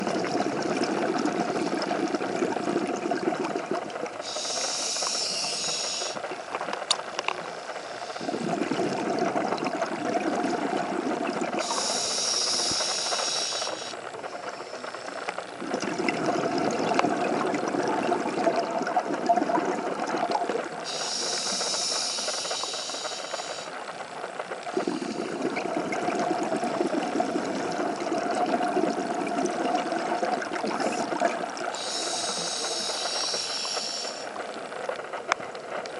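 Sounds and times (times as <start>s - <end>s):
exhale bubbles underwater: 0.0s - 35.8s
regulator inhale hiss: 4.2s - 6.2s, 7.4s - 8.8s, 11.5s - 15.4s, 20.8s - 23.8s, 24.7s - 25.4s, 31.7s - 34.4s.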